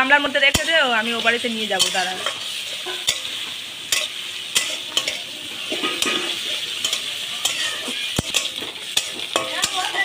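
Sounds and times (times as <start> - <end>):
food sizzling in hot oil: 0.0 - 10.0
metal spatula scraping a pan: 0.4 - 10.0.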